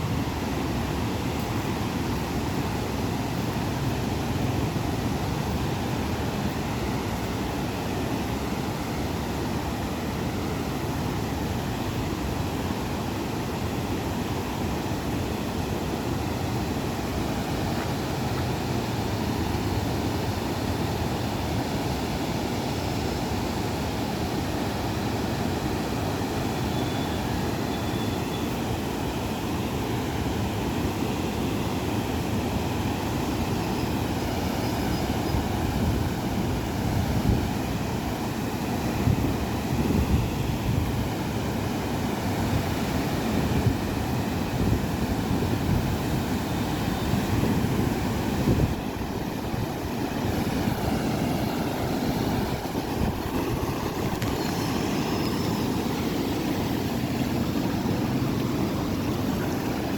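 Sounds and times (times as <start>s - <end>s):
steady rushing noise: 47.3s - 59.9s.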